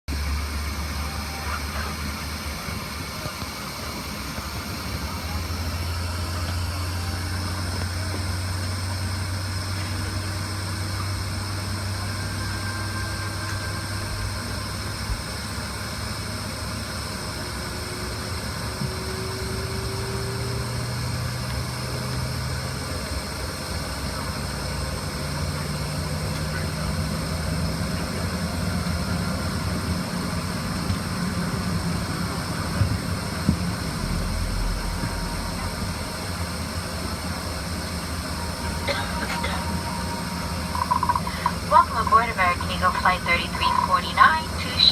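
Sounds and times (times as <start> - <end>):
jet machinery drone in cabin: 0.1 - 44.9
low tone rising in pitch: 33.1 - 44.2.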